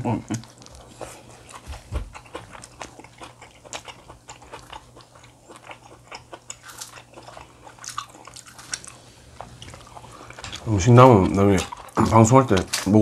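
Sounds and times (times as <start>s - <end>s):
faint low hum: 0.0s - 13.0s
person chewing food: 0.2s - 13.0s.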